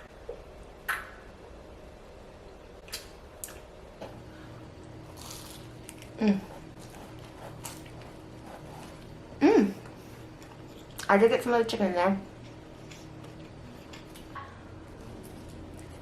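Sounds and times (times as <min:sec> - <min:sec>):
chewing and squishing food: 0:04.8 - 0:09.2, 0:09.8 - 0:11.1, 0:12.3 - 0:16.0.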